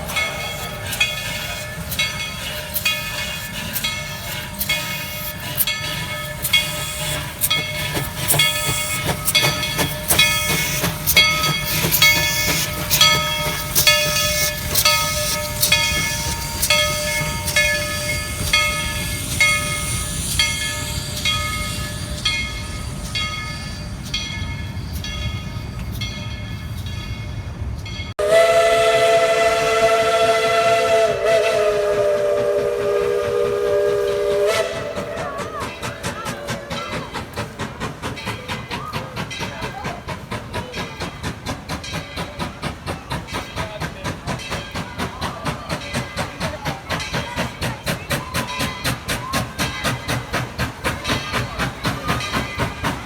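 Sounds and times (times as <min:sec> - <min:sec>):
steam chime whistle: 0:00.0 - 0:26.0, 0:28.2 - 0:37.6
locomotive exhaust chuffs: 0:00.0 - 0:26.7, 0:28.1 - 0:53.0
steam locomotive bell ringing: 0:00.0 - 0:53.0.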